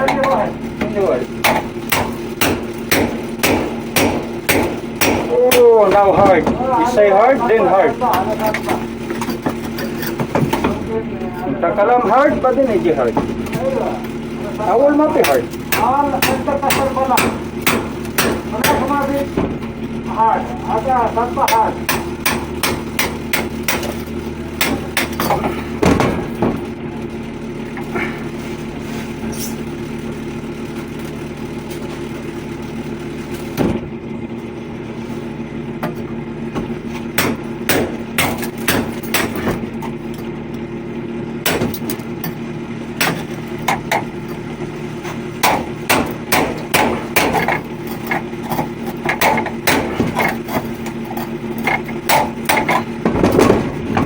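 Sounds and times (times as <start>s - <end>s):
machinery humming: 0.0s - 54.0s
hammer tapping on metal: 1.4s - 6.1s, 15.2s - 19.0s, 21.4s - 24.0s.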